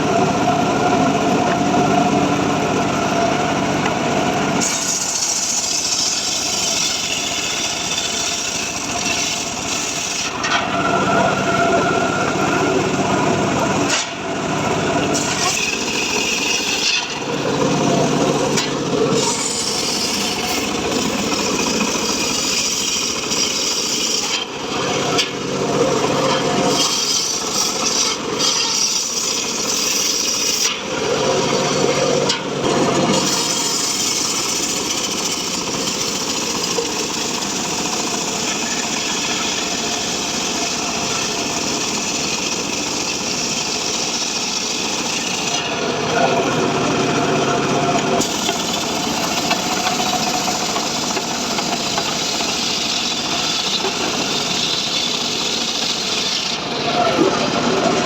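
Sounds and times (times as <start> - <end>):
sawmill engine running: 0.0 - 58.0
saw blade rasping through wood: 4.6 - 12.1, 15.0 - 45.8, 48.1 - 58.0.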